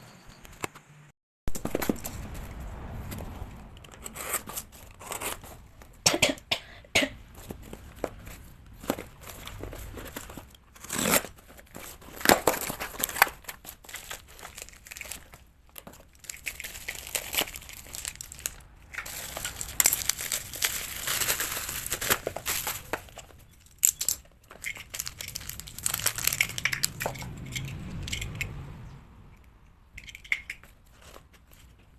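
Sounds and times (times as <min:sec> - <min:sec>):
plastic packaging crinkling and tearing: 0:07.5 - 0:27.7.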